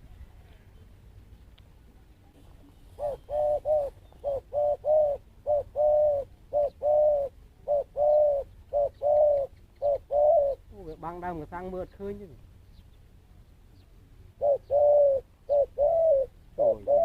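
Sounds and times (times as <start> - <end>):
dove cooing: 2.3 - 11.2, 14.3 - 17.0.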